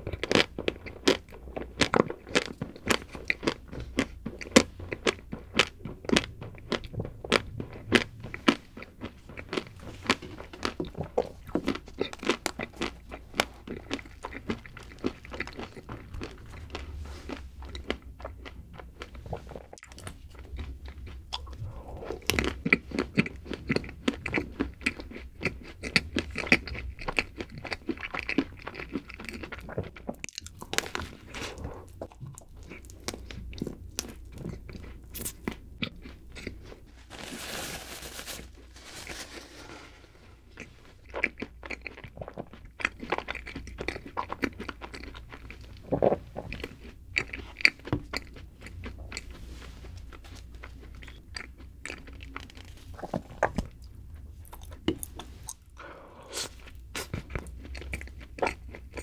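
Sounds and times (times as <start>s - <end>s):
biting and chewing snack cake: 0.0s - 37.1s, 40.4s - 59.0s
wet mouth sounds: 21.2s - 24.4s
crisp chocolate crackles: 36.3s - 40.9s, 51.9s - 53.8s.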